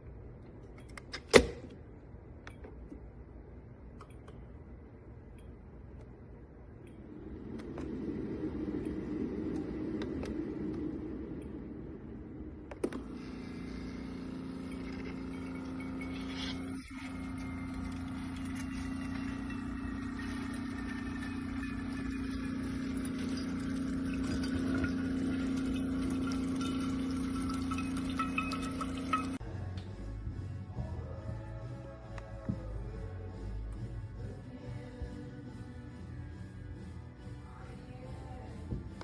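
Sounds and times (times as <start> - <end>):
coffee maker humming: 12.7 - 30.3
liquid running into cup: 13.0 - 29.4.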